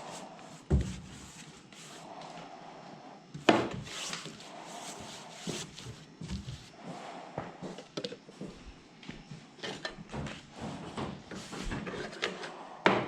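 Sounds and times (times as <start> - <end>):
scraping strokes on hard surface: 0.0 - 2.7, 3.4 - 7.8.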